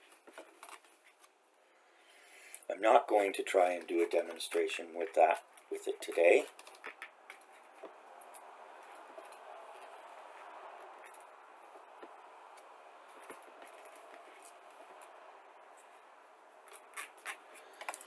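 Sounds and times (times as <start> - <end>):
small parts clicking and rustling: 5.4 - 10.1, 16.6 - 18.0.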